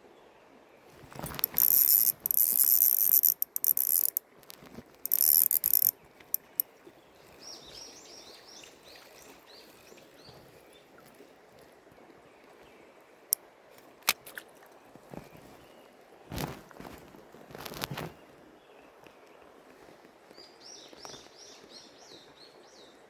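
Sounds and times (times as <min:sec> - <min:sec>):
fishing reel ratcheting buzz: 0:01.1 - 0:06.6.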